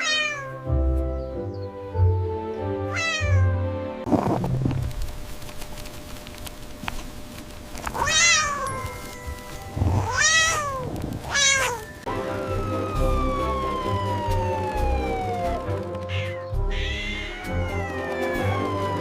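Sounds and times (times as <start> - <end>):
cat meowing: 0.0 - 0.6, 2.9 - 3.6, 7.9 - 11.9, 16.1 - 18.6
background music: 0.0 - 4.8, 11.5 - 19.0.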